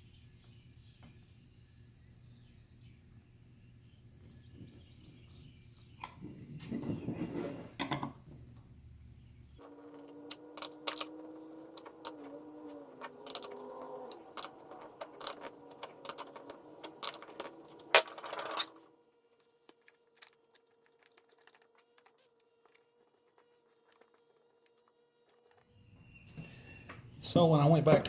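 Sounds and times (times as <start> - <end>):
faint hum: 0.0 - 28.0
electric drill boring into wood: 9.6 - 18.0
clicks and rattles: 9.6 - 18.8.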